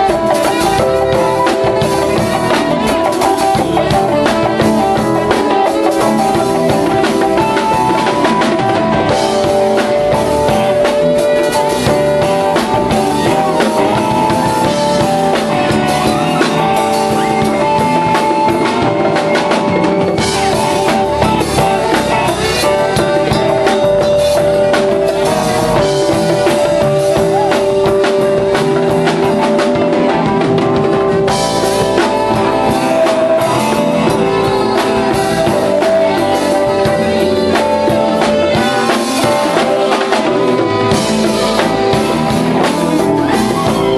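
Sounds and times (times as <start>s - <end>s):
bass: 0.0s - 43.9s
drum kit: 0.0s - 43.9s
keyboards holding melody notes: 0.0s - 43.9s.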